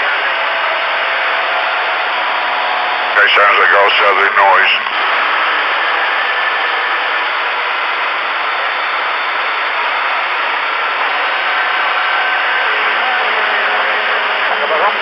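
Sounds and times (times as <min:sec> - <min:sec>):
radio static hiss: 0:03.1 - 0:15.0.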